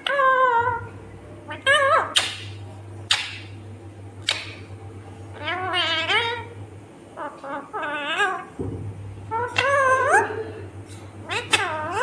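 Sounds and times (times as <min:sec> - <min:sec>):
parakeet warbling chatter: 0:00.0 - 0:00.9, 0:01.5 - 0:03.6, 0:05.3 - 0:06.6, 0:07.2 - 0:08.6, 0:09.2 - 0:10.5, 0:11.2 - 0:12.0
parakeet screech: 0:11.3 - 0:12.0.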